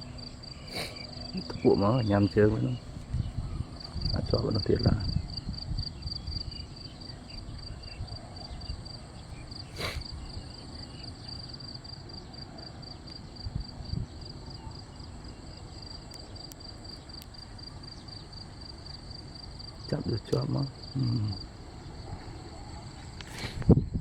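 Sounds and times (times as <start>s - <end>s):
insects chirping: 0.0s - 24.0s
brief rustle: 23.0s - 23.8s.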